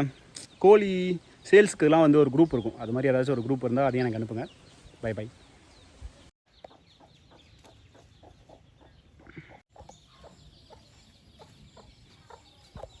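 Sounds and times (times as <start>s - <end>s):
chickens clucking: 6.5s - 13.0s.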